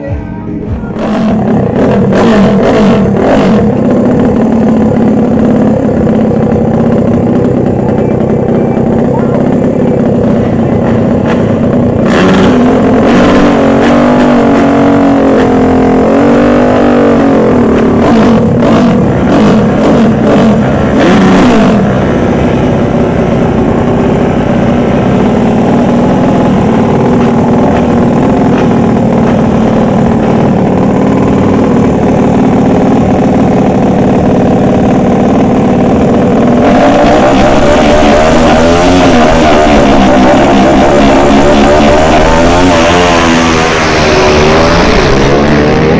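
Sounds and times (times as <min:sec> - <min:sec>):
racing motorcycle engines revving: 0:00.0 - 0:45.9.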